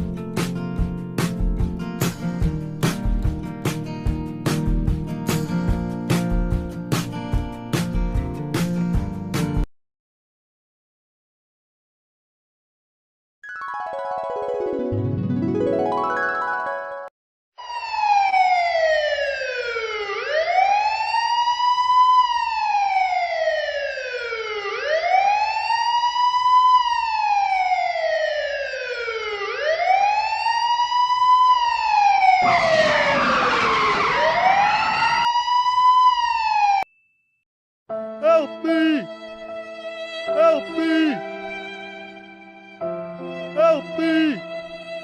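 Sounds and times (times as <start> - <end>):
wailing siren: 17.6 - 36.9.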